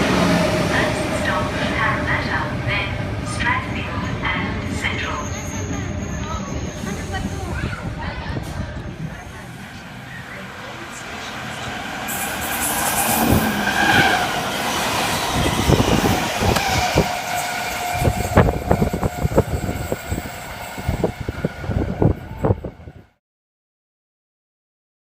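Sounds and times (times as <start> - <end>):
steady train whine: 0.0 - 23.2
train passing at speed: 0.0 - 23.2.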